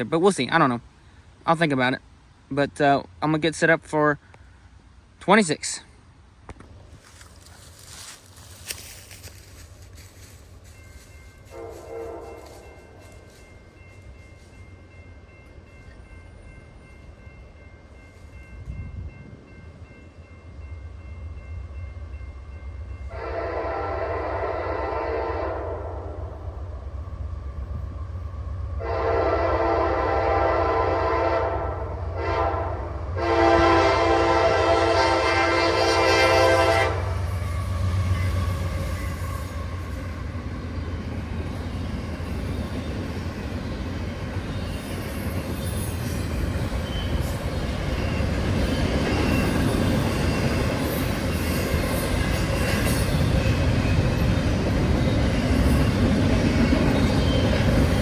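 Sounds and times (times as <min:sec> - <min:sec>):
train rumbling past: 0:00.0 - 0:58.0
locomotive air horn blasts: 0:11.4 - 0:12.8, 0:23.1 - 0:26.1, 0:28.8 - 0:37.2.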